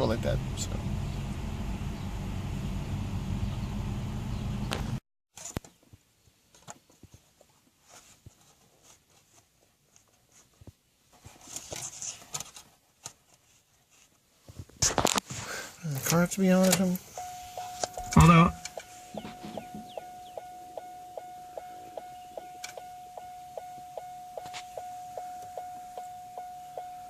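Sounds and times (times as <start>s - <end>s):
car cabin noise: 0.0s - 5.0s, 15.9s - 27.0s
small clicks and rustles: 4.7s - 15.4s.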